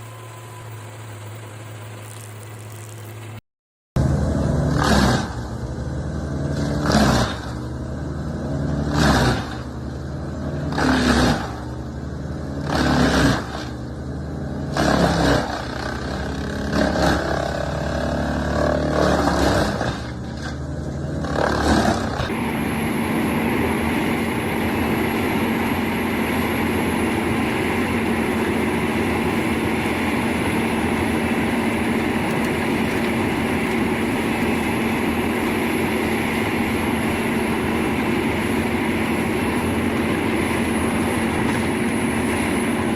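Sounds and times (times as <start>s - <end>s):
stump grinder grinding: 14.6s - 42.9s.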